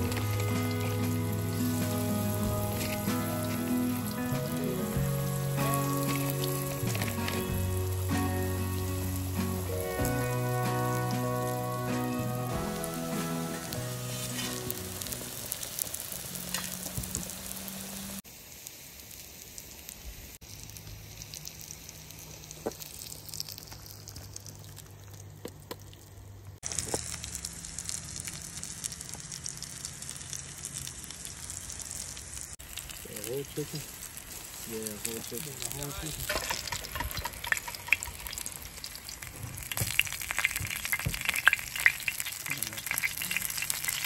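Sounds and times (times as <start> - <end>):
background music: 0.0 - 15.5
food frying in hot oil: 0.0 - 44.0.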